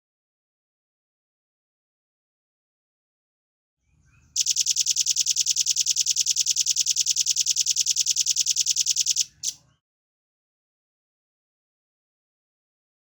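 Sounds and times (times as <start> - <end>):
bird singing rapid trill: 4.4 - 9.6.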